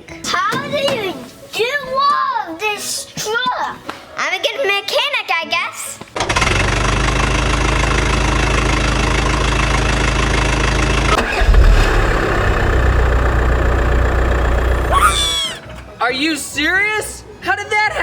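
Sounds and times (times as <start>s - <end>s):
vehicle engine running: 6.4s - 15.4s.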